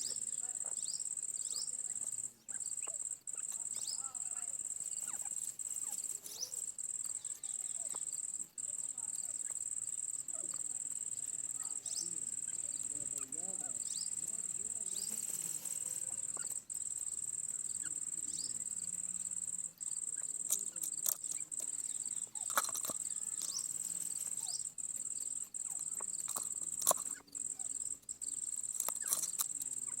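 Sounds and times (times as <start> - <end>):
high-pitched insect buzz: 0.0 - 30.0
sharp clicks: 20.2 - 24.5, 28.5 - 29.8.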